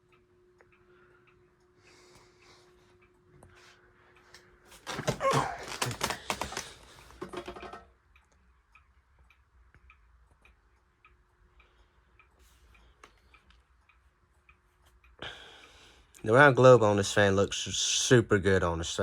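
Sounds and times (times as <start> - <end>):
clock ticking: 0.0 - 3.4, 7.9 - 17.4
ceiling fan motor hum: 0.0 - 19.0.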